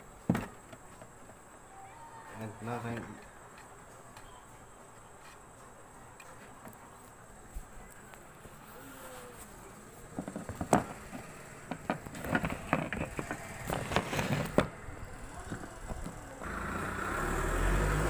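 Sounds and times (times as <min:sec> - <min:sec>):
plastic parts clicking and knocking: 0:10.2 - 0:14.7.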